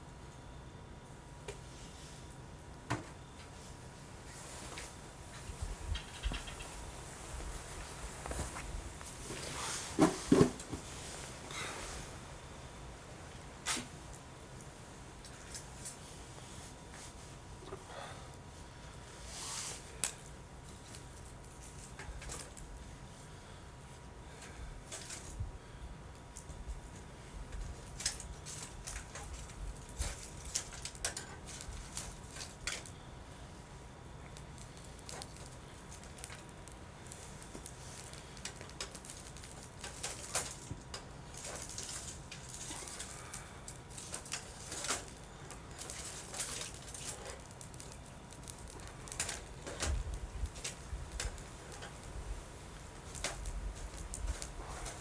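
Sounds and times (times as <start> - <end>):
soft hiss: 3.3 - 21.2
campfire crackling and popping: 27.8 - 54.8.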